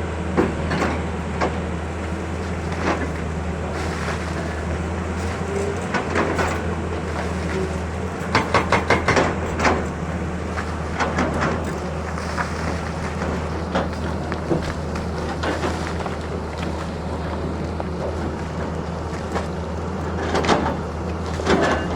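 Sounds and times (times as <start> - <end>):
diesel engine running: 0.0 - 21.9
metal clanks: 0.4 - 16.2
sharp metallic knocks: 8.2 - 10.3.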